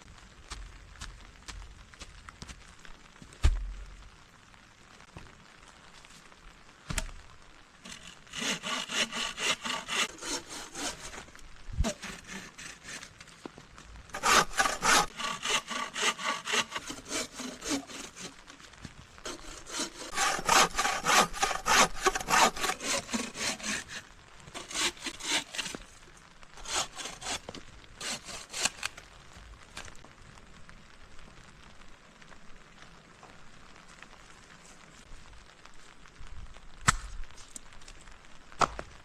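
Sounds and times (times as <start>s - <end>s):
hand saw cutting wood: 7.9s - 13.1s, 14.1s - 18.4s, 19.2s - 24.0s, 24.6s - 25.8s, 26.6s - 28.9s.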